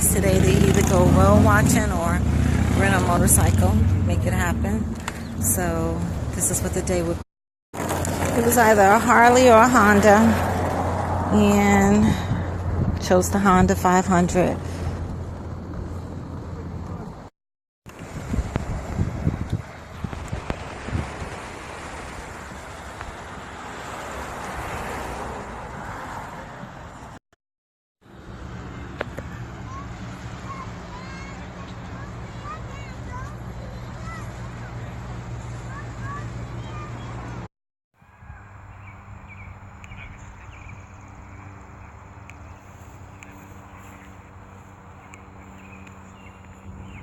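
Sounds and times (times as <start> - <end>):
wind rushing over microphone: 8.7 - 17.2, 17.9 - 26.9.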